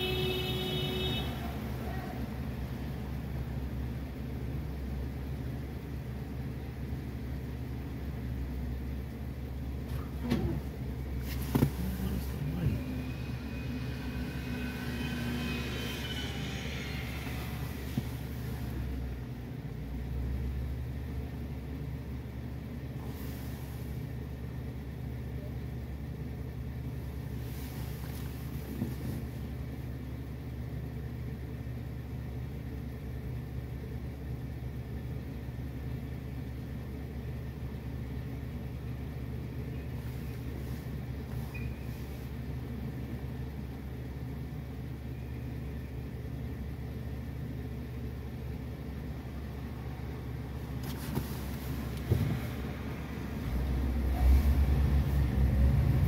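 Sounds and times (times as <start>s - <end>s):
car engine idling: 0.0s - 56.0s
passing traffic hiss: 11.2s - 19.1s.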